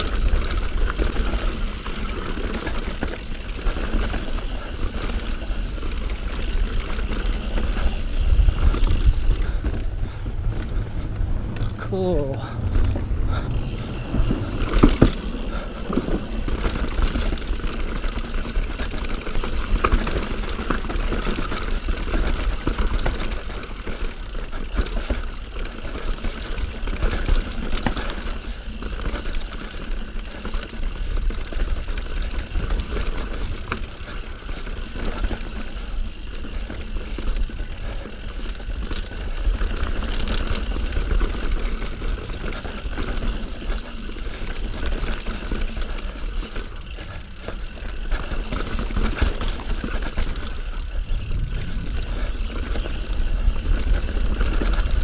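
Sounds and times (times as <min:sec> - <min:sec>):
bike rattling over dirt: 0:00.0 - 0:55.0
wind buffeting microphone: 0:07.4 - 0:17.6, 0:49.6 - 0:55.0.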